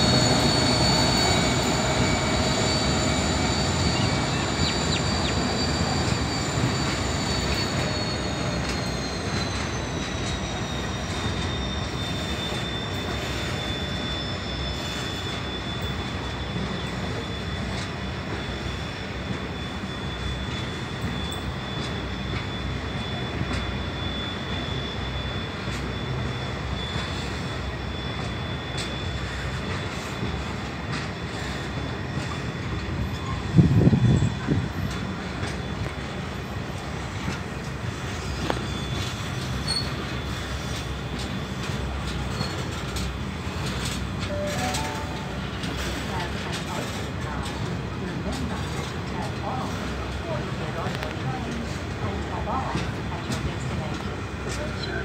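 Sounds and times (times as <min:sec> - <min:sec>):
high wheel squeal: 0:00.0 - 0:50.6
train wheels rumbling on rail: 0:00.0 - 0:55.0.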